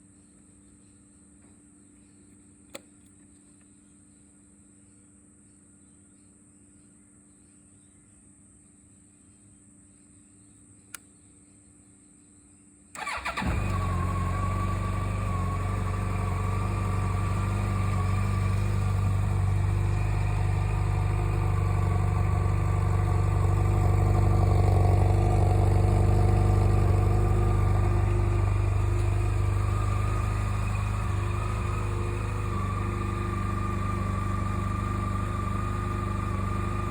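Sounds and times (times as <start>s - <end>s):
motorcycle engine cranking: 13.0s - 36.9s
motorcycle engine idling: 13.0s - 36.9s.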